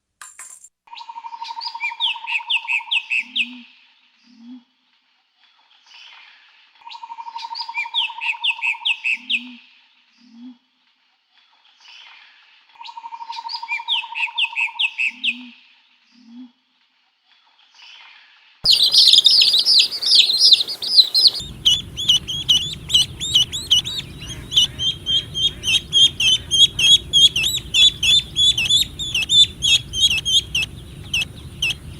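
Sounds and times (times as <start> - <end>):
small birds chirping: 18.7 - 31.9.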